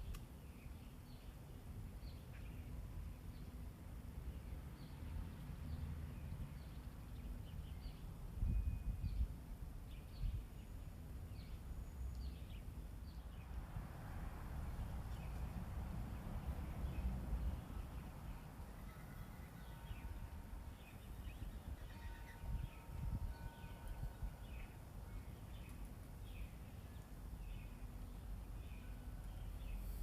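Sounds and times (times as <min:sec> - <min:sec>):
wind rumble on microphone: 0:07.8 - 0:10.6, 0:21.2 - 0:24.8.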